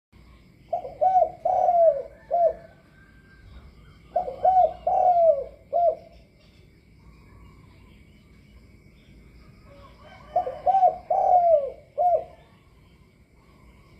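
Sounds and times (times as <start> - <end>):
dove cooing: 0.7 - 6.3, 9.6 - 13.9.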